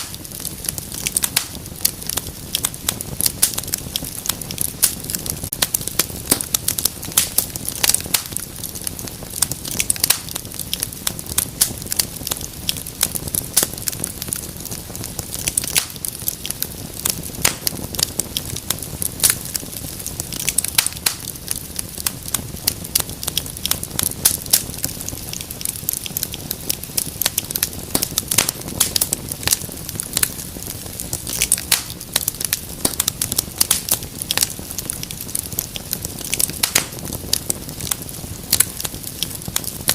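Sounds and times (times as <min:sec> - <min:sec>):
low rumble of flames: 0:00.0 - 0:39.9
wood fire crackling: 0:00.0 - 0:39.9.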